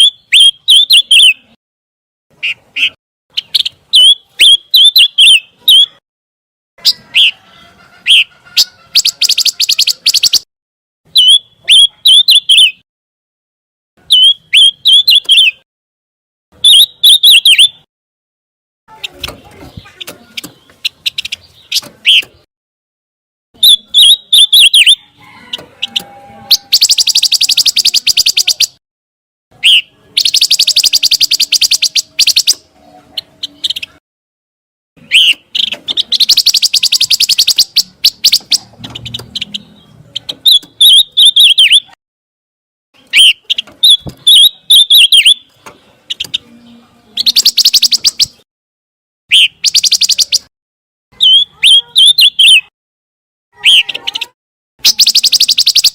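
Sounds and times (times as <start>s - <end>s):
bird chirping: 0.0s - 1.6s, 2.3s - 6.0s, 6.8s - 10.5s, 11.1s - 12.8s, 14.0s - 15.6s, 16.6s - 17.9s, 18.9s - 22.5s, 23.6s - 28.8s, 29.6s - 34.0s, 35.0s - 42.0s, 43.0s - 48.4s, 49.3s - 50.5s, 51.2s - 52.7s, 53.6s - 55.9s
bird buzzy rattling trills: 25.5s - 28.8s, 35.1s - 39.5s.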